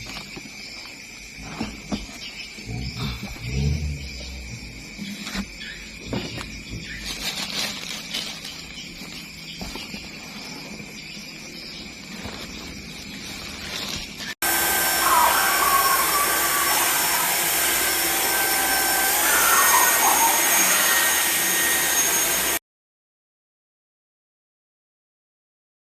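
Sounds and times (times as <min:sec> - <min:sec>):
stick vacuum motor whine: 0:11.7 - 0:22.6.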